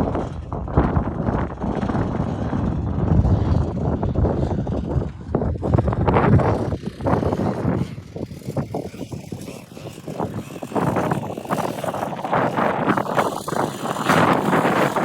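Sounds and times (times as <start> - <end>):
dirt bike engine revving: 3.3 - 15.0.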